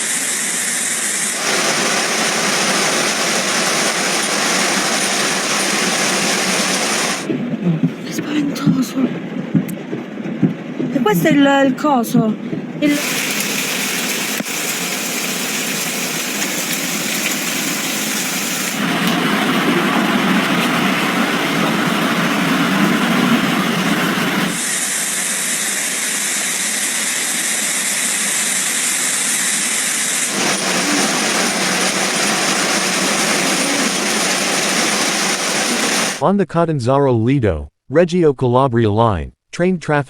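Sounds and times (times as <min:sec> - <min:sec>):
heavy rain hissing: 0:00.0 - 0:07.3, 0:12.8 - 0:29.2, 0:30.1 - 0:36.2.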